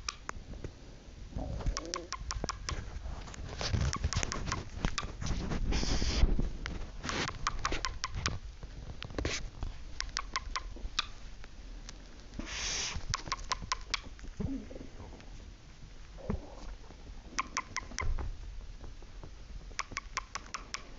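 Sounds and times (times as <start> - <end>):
cockatiels clicking and tapping: 0.0 - 0.3, 1.6 - 2.9, 3.6 - 5.2, 7.1 - 8.4, 9.9 - 11.2, 13.0 - 14.3, 17.3 - 18.2, 19.7 - 20.9
cockatiel hissing: 12.4 - 13.2.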